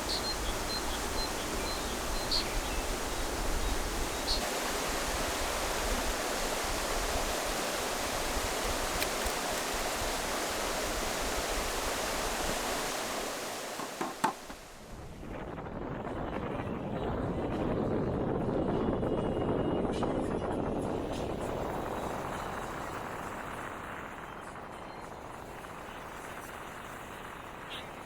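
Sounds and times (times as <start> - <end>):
stream rushing: 0.0 - 15.0
sharp clicks: 8.6 - 9.8.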